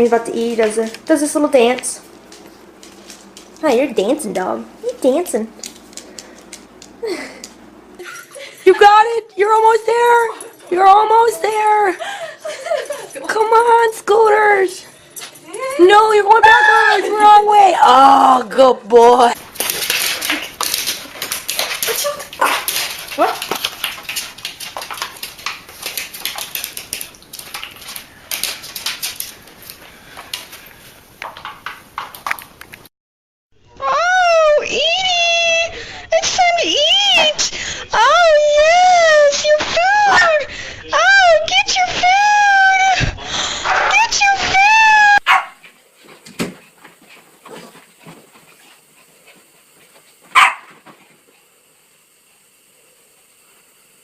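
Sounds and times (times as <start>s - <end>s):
clicks and clatters: 19.4s - 32.9s
dog barking: 45.3s - 45.6s, 50.3s - 50.7s.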